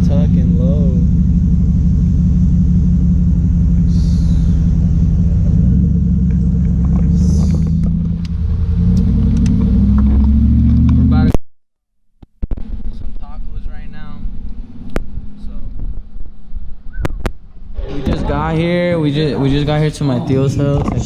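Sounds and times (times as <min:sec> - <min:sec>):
car engine low rumble: 0:00.0 - 0:11.4, 0:12.3 - 0:21.0
short hisses: 0:03.8 - 0:04.8.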